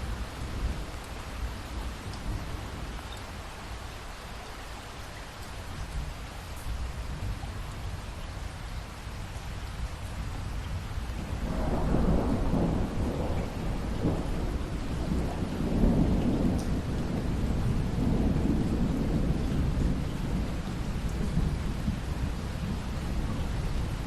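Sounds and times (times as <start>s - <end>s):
rain falling: 0.0s - 24.0s
thunder rumbling: 11.2s - 24.0s.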